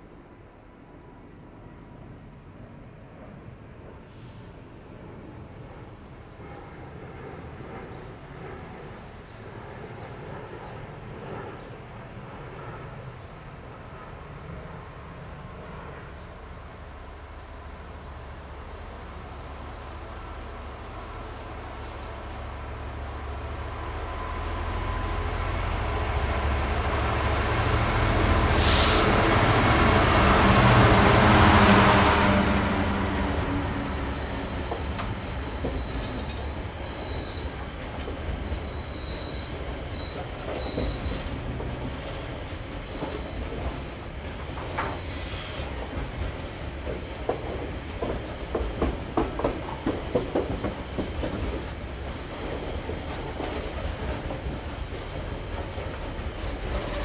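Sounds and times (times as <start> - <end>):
diesel locomotive passing: 3.1 - 57.0
high wheel squeal: 33.7 - 37.8, 38.4 - 41.3, 56.1 - 57.0
wheels clacking over rail joints: 34.2 - 57.0.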